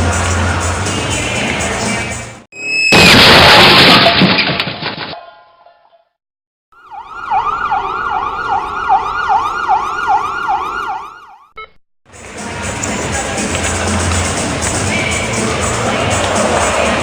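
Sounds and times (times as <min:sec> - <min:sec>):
siren sweeping up and down: 0:06.8 - 0:11.6.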